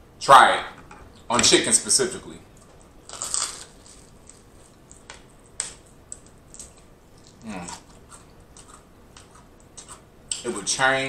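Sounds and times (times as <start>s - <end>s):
fried chicken wing crunching: 2.6s - 10.4s.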